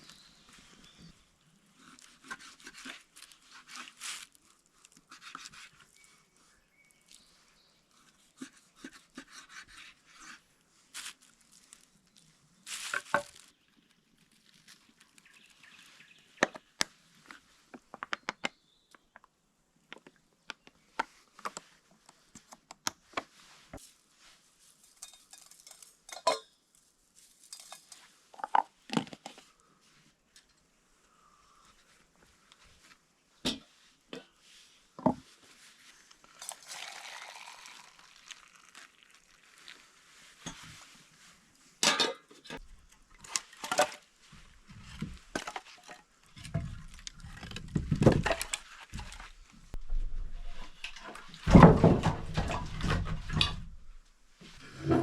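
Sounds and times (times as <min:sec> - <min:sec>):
cookware and utensils clinking: 0:24.9 - 0:26.6, 0:27.5 - 0:28.1, 0:41.8 - 0:42.6.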